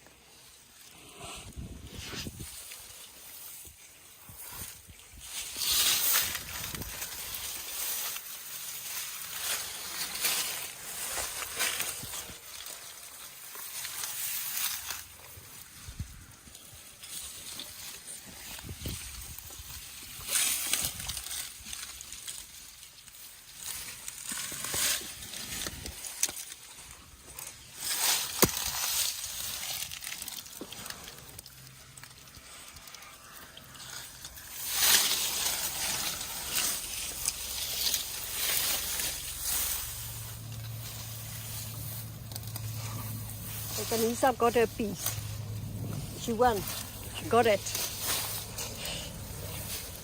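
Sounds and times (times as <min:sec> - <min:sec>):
leafy branches rustling: 0:00.0 - 0:50.0
branch snapping: 0:24.0 - 0:26.8, 0:27.4 - 0:43.8.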